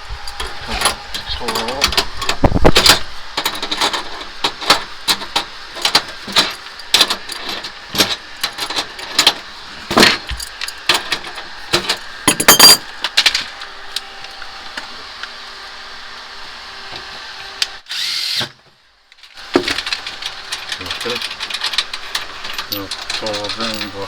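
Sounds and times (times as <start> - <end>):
metal tools clinking: 0.2 - 13.5, 19.4 - 24.0
metal clatter: 0.3 - 13.5, 19.4 - 24.0.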